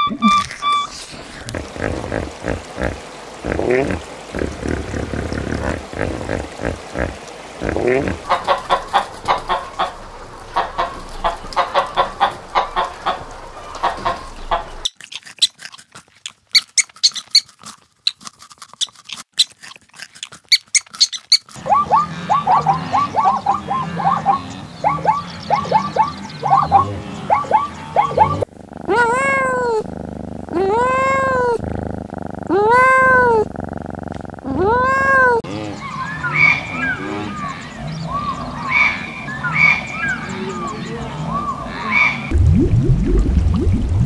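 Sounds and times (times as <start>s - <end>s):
animal calls with rising glides: 21.6s - 29.9s.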